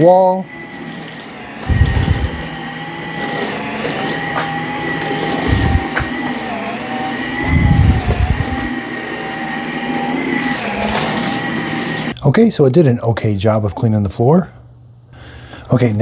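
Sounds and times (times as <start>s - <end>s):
vacuum cleaner motor whine: 0.0s - 12.2s.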